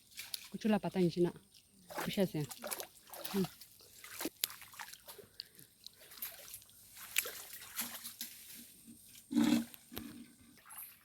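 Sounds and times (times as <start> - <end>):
water splashing by hands: 0.0 - 0.8, 1.5 - 8.4.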